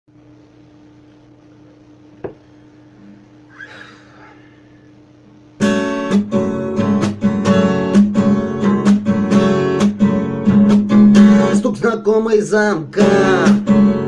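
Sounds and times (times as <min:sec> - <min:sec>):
faint room hum: 0:00.1 - 0:14.0
acoustic guitar strumming: 0:05.6 - 0:14.0.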